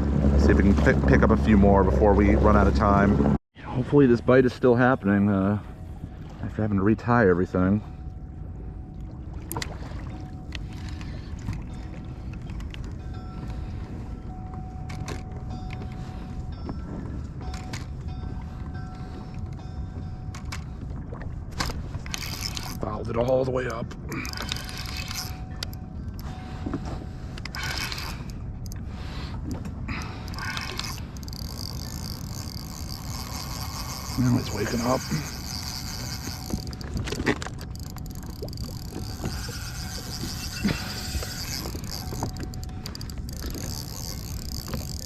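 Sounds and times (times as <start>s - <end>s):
wind and water rumble: 0.0s - 45.0s
spinning reel clicking: 22.1s - 22.8s, 30.3s - 36.8s, 37.8s - 45.0s
faint thin whine: 30.3s - 45.0s.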